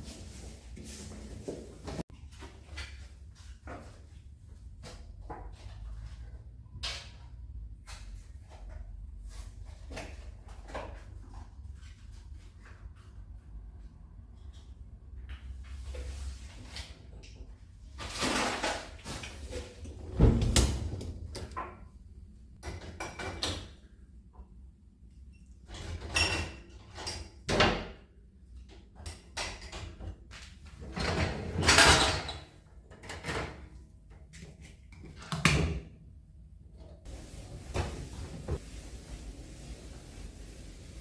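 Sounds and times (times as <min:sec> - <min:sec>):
doors and cupboards knocking: 0:20.1 - 0:21.8
rustling: 0:37.1 - 0:41.0.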